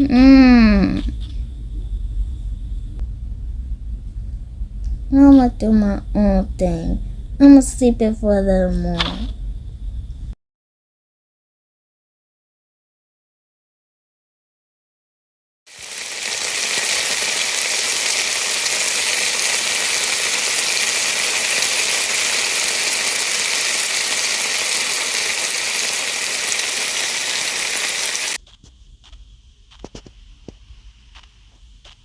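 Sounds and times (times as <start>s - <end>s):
loud hiss: 15.7s - 28.4s.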